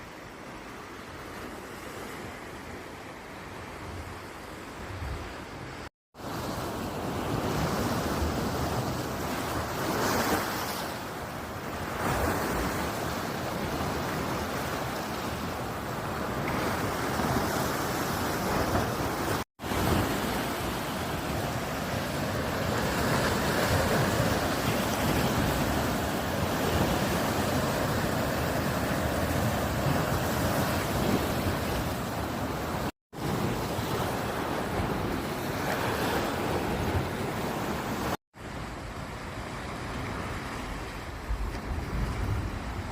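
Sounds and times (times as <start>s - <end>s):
sea surf washing onto beach: 6.2s - 42.9s
wind buffeting microphone: 16.1s - 42.9s.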